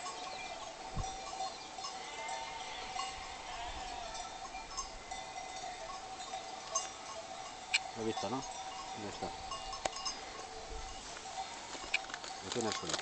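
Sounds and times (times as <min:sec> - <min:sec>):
sheep bells clinking: 0:00.0 - 0:13.0
sheep bleating: 0:01.8 - 0:05.2.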